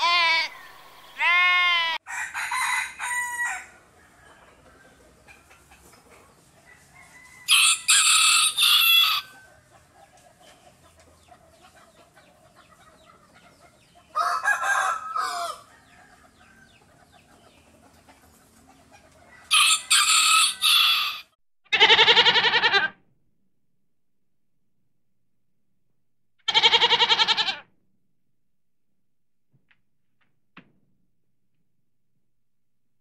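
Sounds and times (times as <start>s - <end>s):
goat bleating: 0.0s - 2.0s, 21.7s - 23.0s, 26.5s - 27.7s
rooster crowing: 2.0s - 4.8s, 6.7s - 9.5s, 14.1s - 16.7s, 19.4s - 21.3s.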